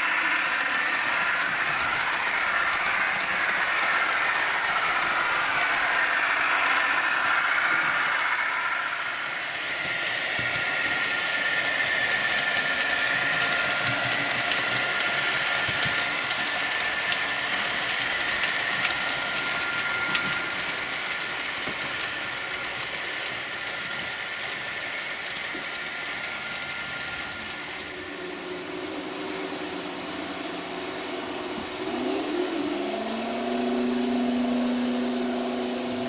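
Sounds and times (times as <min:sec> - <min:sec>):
wheels clicking over rail joints: 0:00.0 - 0:28.4
model train motor whine: 0:00.0 - 0:36.0.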